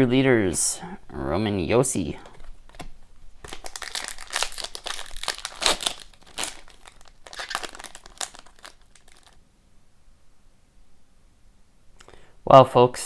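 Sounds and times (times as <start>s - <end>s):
cards being handled: 2.1s - 9.4s
foil wrapper crinkling: 2.2s - 9.4s.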